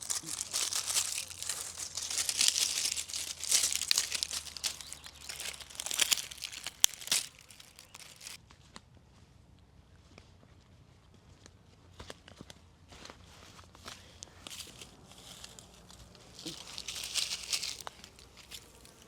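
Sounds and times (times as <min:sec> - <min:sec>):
packaging crinkling and rustling: 0:00.0 - 0:08.4, 0:16.3 - 0:19.0.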